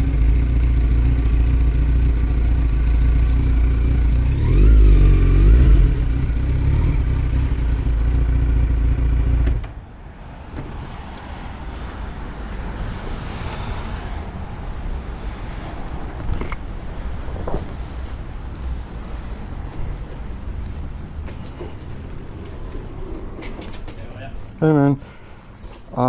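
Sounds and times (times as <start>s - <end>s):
motorcycle engine running: 0.0s - 9.6s
faint background noise: 5.0s - 26.0s.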